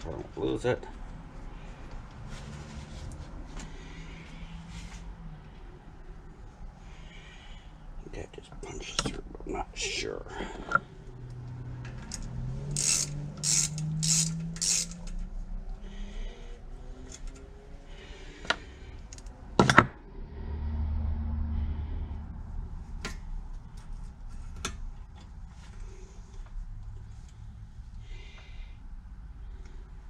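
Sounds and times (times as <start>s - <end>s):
metal scraping strokes: 12.1s - 15.2s.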